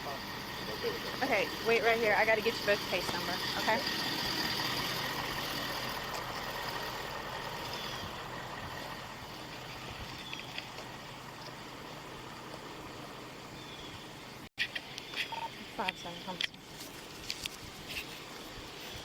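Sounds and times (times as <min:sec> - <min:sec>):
vehicle engine running: 0:00.0 - 0:14.5.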